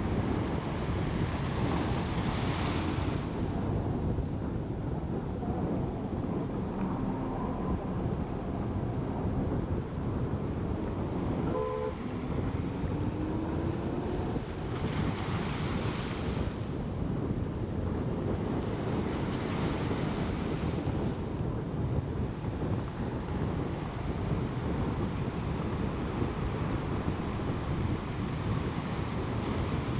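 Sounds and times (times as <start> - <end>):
sea waves: 0.0 - 12.8, 14.0 - 17.0
wind buffeting microphone: 0.0 - 29.9
steady low rumble: 3.3 - 14.7
slowly rising tone: 5.1 - 10.0
short tone: 11.4 - 12.1.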